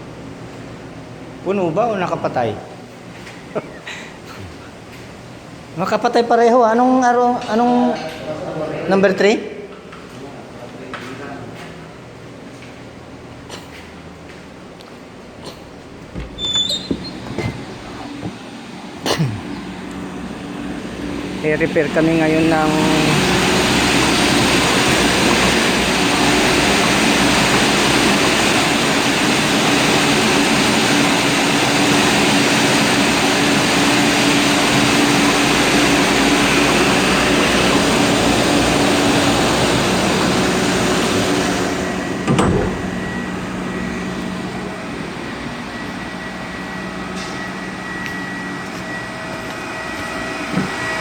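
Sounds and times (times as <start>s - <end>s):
steady hum: 11.7s - 51.0s
pumps and motors running: 15.4s - 51.0s
machine thump: 16.1s - 18.4s, 42.2s - 43.0s
steady high tone: 20.4s - 29.0s.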